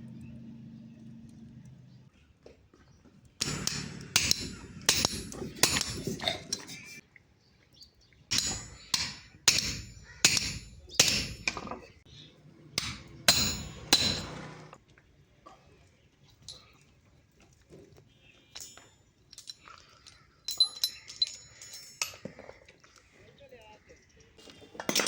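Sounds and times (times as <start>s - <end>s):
hammer striking steel on anvil: 3.4s - 6.1s, 8.3s - 11.8s, 12.8s - 14.6s.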